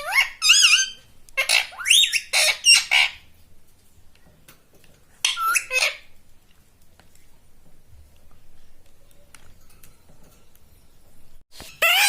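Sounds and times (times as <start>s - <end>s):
parrot squawking: 0.0s - 3.3s, 5.2s - 6.1s, 11.7s - 12.0s.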